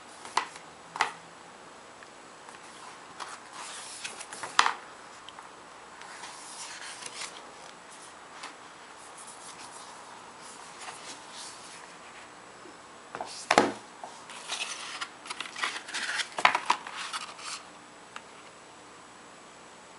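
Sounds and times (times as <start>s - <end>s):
packaging rustling and rubbing: 6.1s - 8.1s, 14.2s - 17.6s.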